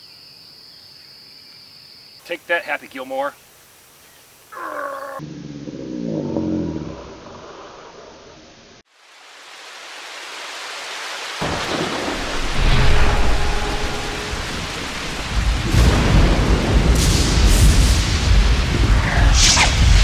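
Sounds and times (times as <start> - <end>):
heavy rain: 8.9 - 20.0
deep rolling thunder: 11.4 - 20.0.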